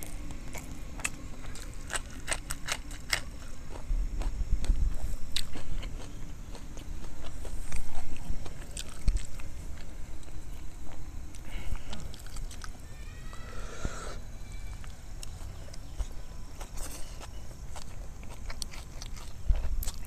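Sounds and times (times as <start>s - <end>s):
close-miked chewing food: 0.0s - 12.8s, 14.8s - 20.0s.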